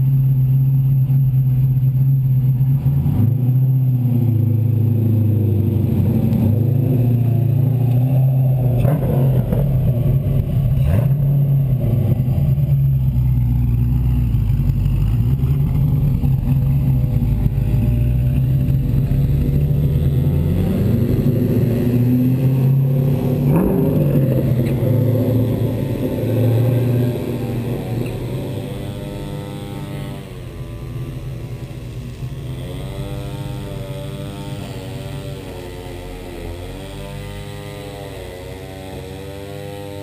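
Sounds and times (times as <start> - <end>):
kart engine running: 0.0 - 40.0.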